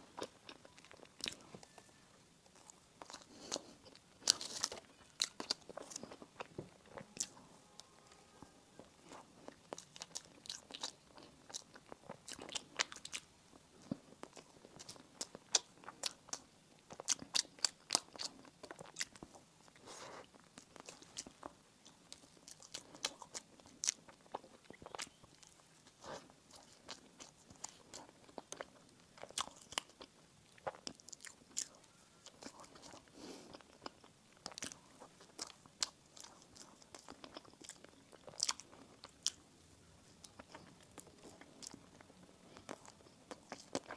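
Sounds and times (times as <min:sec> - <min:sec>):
chewing: 0:00.0 - 0:43.9
crunching bread: 0:00.1 - 0:07.4.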